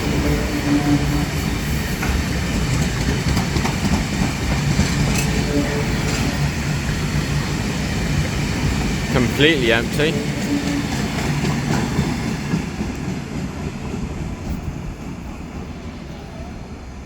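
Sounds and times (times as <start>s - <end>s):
freight train wagons rumbling: 0.0s - 16.4s
wheels clicking over rail joints: 2.0s - 9.1s.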